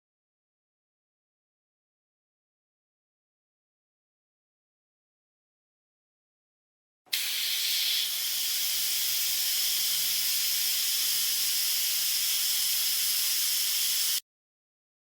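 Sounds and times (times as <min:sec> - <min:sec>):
pressurised spray hissing: 0:07.1 - 0:14.2.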